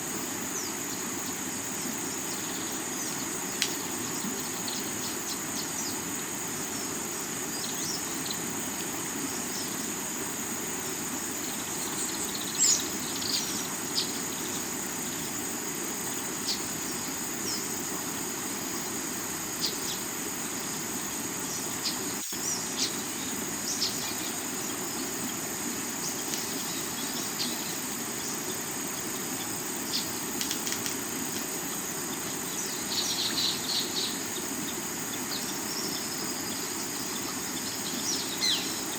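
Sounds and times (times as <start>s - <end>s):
high drone of insects: 0.0s - 38.9s
river water running over rocks: 0.0s - 38.9s.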